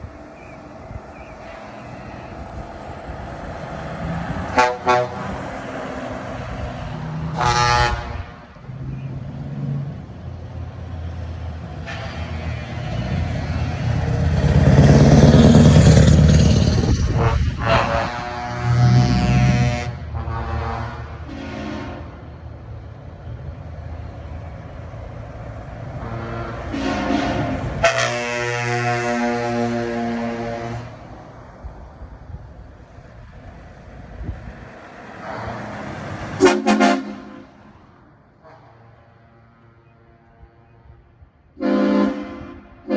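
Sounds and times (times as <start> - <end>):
truck diesel engine passing: 0.0 - 42.9
truck air horn blast: 4.4 - 5.6, 7.3 - 8.5, 11.8 - 12.4, 16.8 - 22.2, 26.0 - 31.3, 36.3 - 37.8, 38.4 - 42.9.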